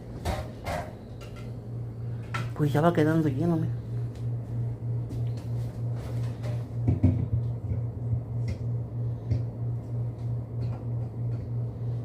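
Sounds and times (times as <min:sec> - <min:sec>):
pulsing refrigerator hum: 0:00.0 - 0:12.0
items knocking and clinking: 0:06.4 - 0:07.8.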